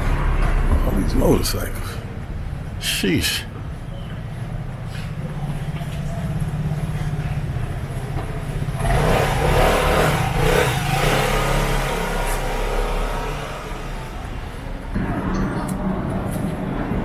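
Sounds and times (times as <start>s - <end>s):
traffic engines humming: 0.0s - 17.0s
vehicle accelerating: 5.4s - 17.0s.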